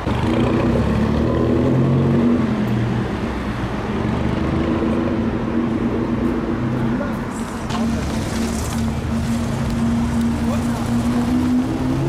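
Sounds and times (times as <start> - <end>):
racing car engine accelerating: 7.8 - 12.0.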